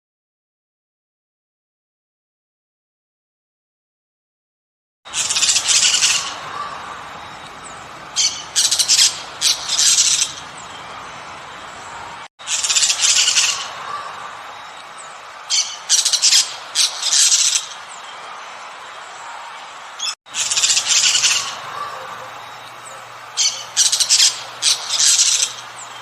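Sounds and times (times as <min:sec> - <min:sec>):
harsh bird squawks: 0:05.1 - 0:07.1, 0:08.1 - 0:10.6, 0:12.4 - 0:14.2, 0:15.5 - 0:17.8, 0:20.0 - 0:26.0.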